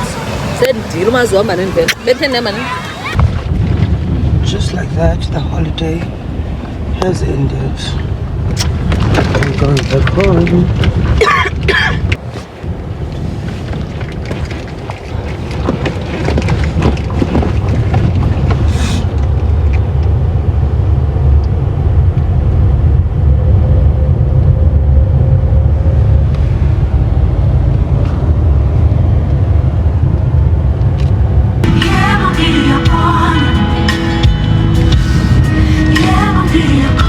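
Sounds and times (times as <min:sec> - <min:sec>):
car road and engine rumble: 0:00.0 - 0:37.0
rattles and knocks: 0:08.5 - 0:12.2, 0:13.5 - 0:19.6.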